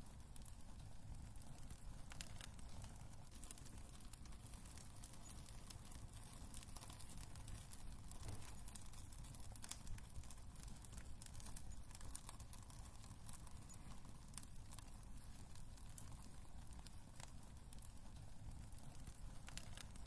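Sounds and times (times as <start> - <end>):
low fire rumble: 0.0 - 20.0
wood fire crackling: 0.0 - 20.0.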